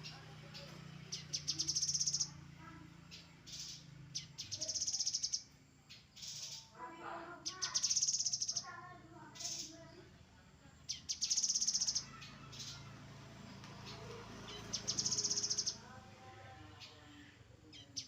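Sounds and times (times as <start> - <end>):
bird trilling: 0.0 - 2.4, 3.0 - 6.8, 7.4 - 9.8, 10.9 - 12.9, 13.8 - 15.9.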